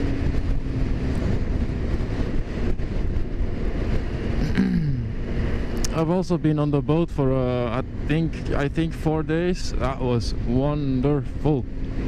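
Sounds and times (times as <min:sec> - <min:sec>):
wind noise on microphone: 0:00.0 - 0:05.9
motorcycle engine rumble: 0:00.0 - 0:12.0.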